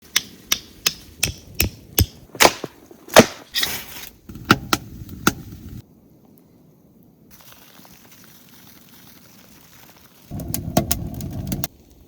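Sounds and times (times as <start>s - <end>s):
tool striking wood: 0.1s - 3.4s.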